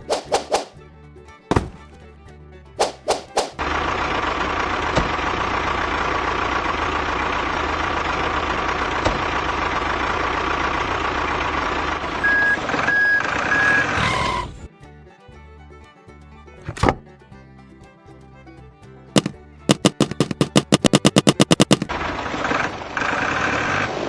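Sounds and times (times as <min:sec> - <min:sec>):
truck engine running: 0:00.7 - 0:24.0
reversing alarm beeping: 0:12.1 - 0:14.5.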